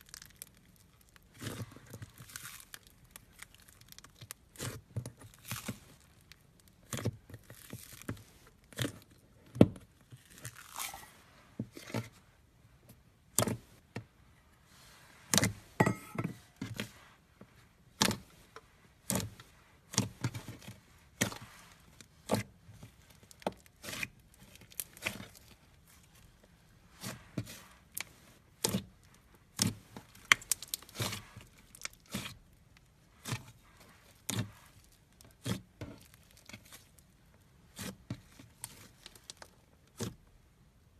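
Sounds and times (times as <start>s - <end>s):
rustling squishes: 0.0s - 15.8s, 16.4s - 40.9s.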